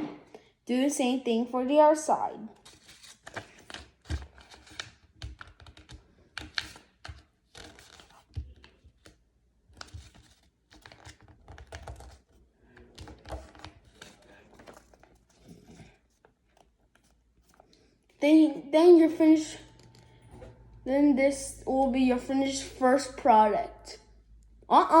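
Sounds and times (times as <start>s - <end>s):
paper being folded: 2.5s - 18.2s.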